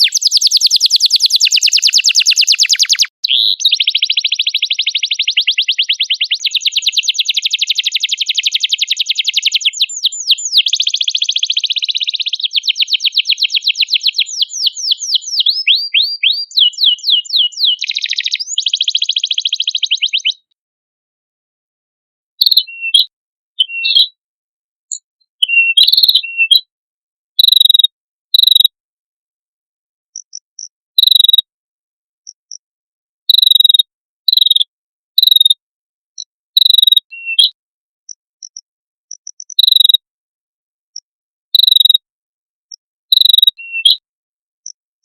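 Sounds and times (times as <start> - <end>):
faint high peeps: 0.0 - 20.5, 22.4 - 23.1, 27.4 - 28.7, 30.2 - 31.5, 33.3 - 35.6, 36.2 - 37.5, 38.1 - 40.0, 41.0 - 42.0, 42.7 - 44.0
harsh bird chirps: 0.0 - 20.5, 22.4 - 24.2, 24.9 - 26.6, 27.4 - 28.7, 31.0 - 31.4, 33.3 - 35.6, 36.6 - 37.6, 38.4 - 40.0, 41.6 - 42.0, 42.7 - 44.0.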